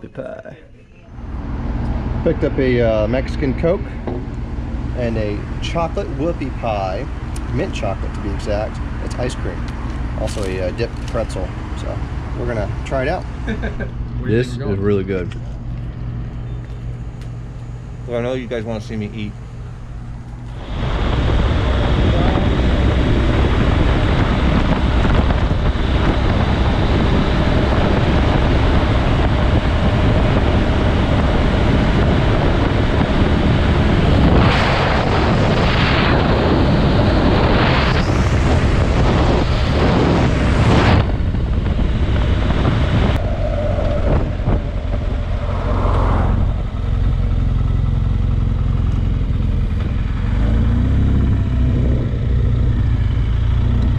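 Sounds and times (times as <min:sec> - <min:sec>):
motorcycle engine running: 0:01.1 - 0:53.9
wind buffeting microphone: 0:20.1 - 0:53.9.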